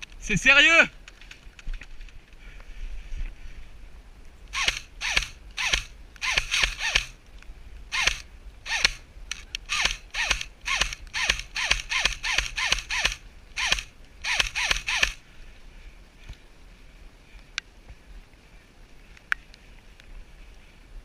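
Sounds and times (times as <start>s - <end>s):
airsoft gun shots: 4.6s - 7.1s, 7.9s - 9.0s, 9.7s - 15.2s.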